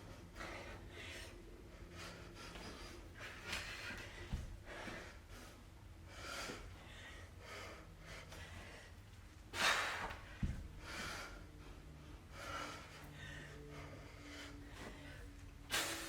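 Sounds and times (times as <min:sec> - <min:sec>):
person breathing hard: 0:00.0 - 0:16.0.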